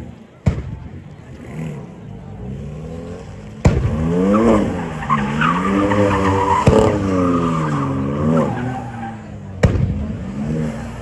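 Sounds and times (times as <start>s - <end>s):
car engine revving hard: 1.2s - 11.0s
tyres squealing: 4.0s - 9.4s.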